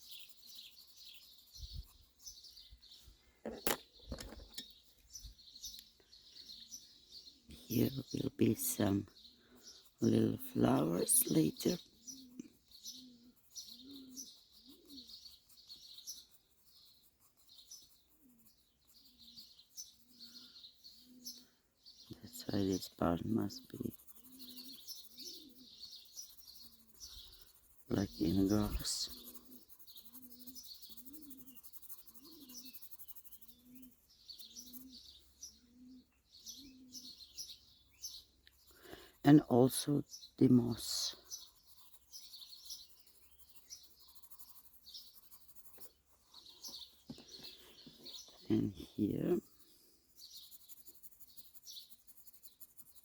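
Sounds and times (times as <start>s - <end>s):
small birds chirping: 0.0s - 53.0s
bird low call: 11.8s - 16.0s
dove cooing: 12.1s - 15.1s, 24.3s - 25.8s, 30.3s - 31.5s, 34.5s - 37.2s.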